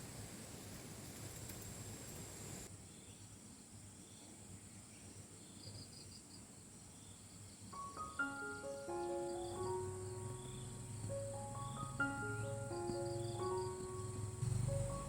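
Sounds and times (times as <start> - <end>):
insect chirping: 0.0 - 3.2, 5.4 - 15.0
steady hiss: 0.0 - 3.8
gentle melody: 7.7 - 15.0.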